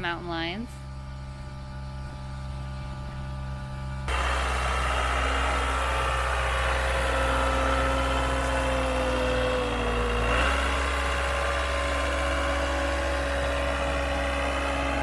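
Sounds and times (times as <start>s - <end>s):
engine idling: 1.2s - 15.0s.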